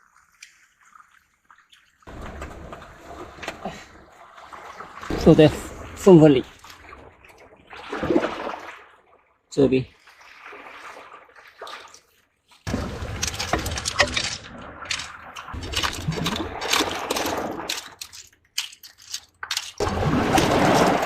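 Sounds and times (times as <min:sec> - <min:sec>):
rustling watery noise: 0:00.0 - 0:21.0
scraping on rock: 0:12.7 - 0:21.0
snail shells clicking: 0:13.1 - 0:19.8.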